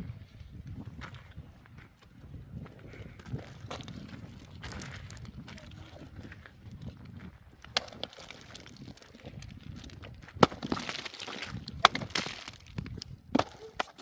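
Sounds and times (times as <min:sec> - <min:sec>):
sharp knocks or cracks: 0:10.4 - 0:14.0.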